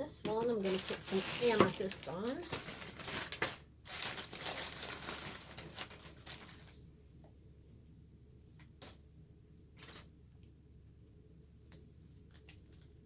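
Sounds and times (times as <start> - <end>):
stone chips rustling patter: 0.2 - 7.1.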